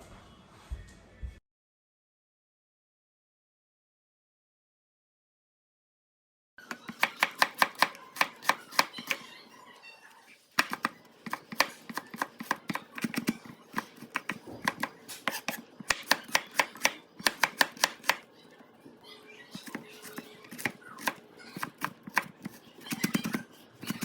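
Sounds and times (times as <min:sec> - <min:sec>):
knife chopping on cutting board: 0:06.9 - 0:09.2, 0:10.6 - 0:18.2.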